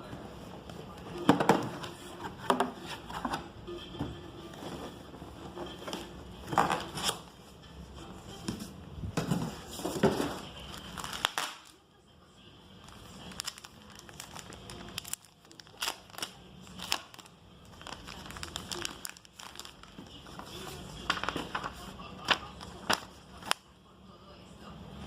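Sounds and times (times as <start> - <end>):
plastic wrapping crinkling: 10.2 - 11.8, 12.8 - 23.6.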